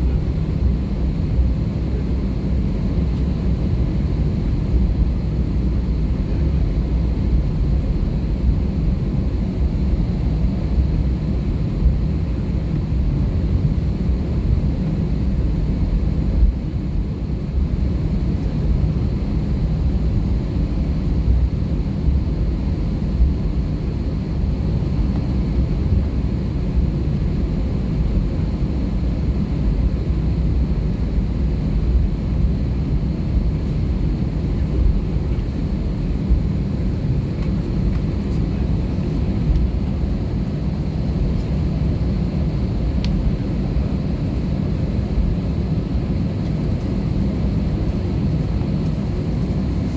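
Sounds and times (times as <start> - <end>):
low rumble of aircraft engines: 0.0 - 49.9.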